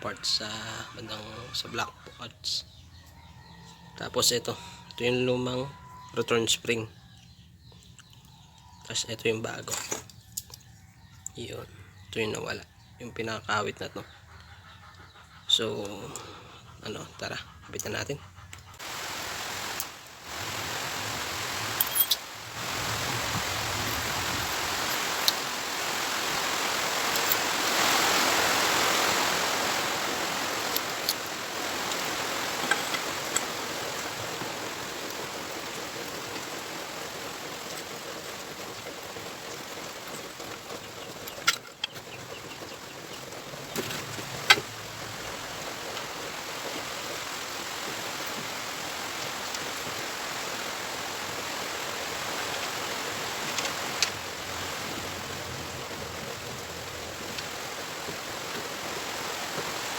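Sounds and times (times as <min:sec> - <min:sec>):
steady rushing hiss: 0:18.8 - 0:59.9.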